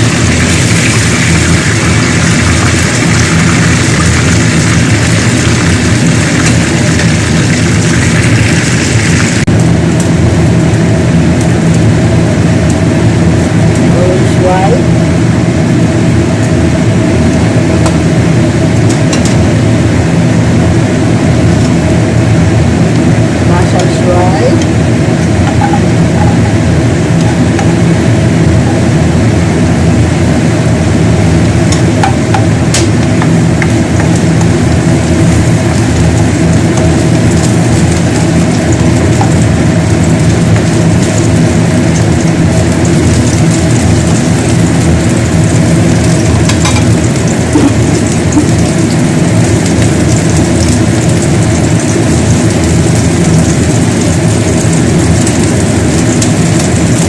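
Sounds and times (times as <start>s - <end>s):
food sizzling as it fries: 0.0s - 57.0s
steady low hum: 0.0s - 57.0s.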